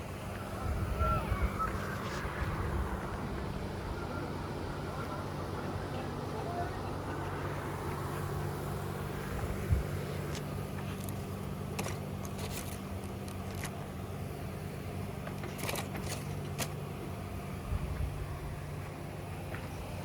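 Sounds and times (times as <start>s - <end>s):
engine hum: 0.0s - 20.0s
light clicks and rustles: 10.1s - 13.9s, 15.2s - 16.8s.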